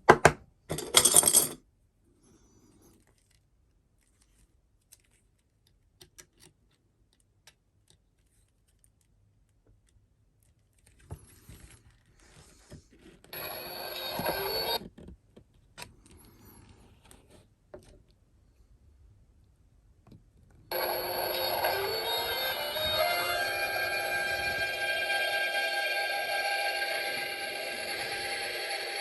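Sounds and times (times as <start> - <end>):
buzzy electronic tone: 20.7 - 29.0.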